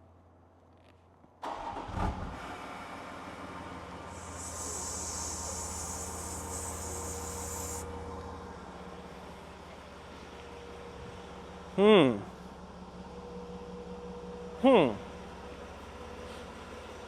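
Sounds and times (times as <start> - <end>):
diesel engine starting and idling: 1.4 - 11.8, 12.4 - 17.0
high hiss: 4.1 - 7.9.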